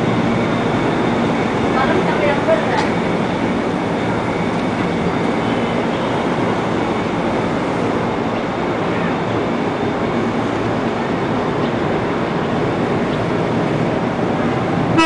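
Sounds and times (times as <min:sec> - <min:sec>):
train mechanical hum: 0:00.0 - 0:15.0.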